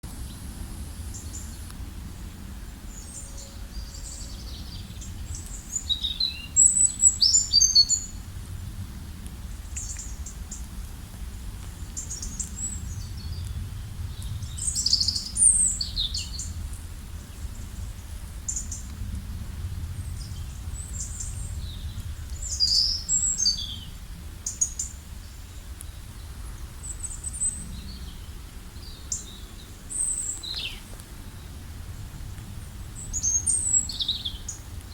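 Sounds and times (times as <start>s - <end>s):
low background rumble: 0.0s - 34.9s
songbirds chirping and singing: 2.7s - 8.2s, 20.0s - 31.6s.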